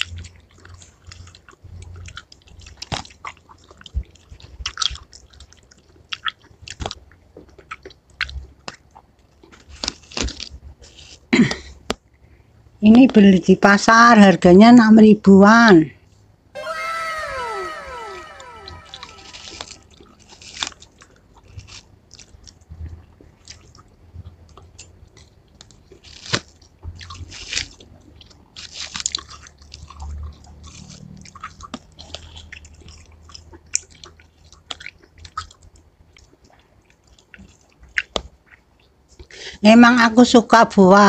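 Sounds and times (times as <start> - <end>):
person chewing watermelon: 0.0 - 11.2, 23.4 - 39.0.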